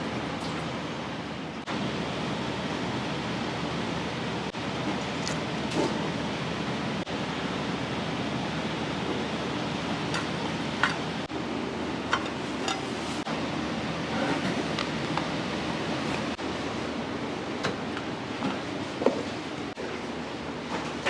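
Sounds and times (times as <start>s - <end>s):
busy kitchen rushing noise: 0.0s - 21.0s
kitchenware clinking: 12.1s - 13.0s.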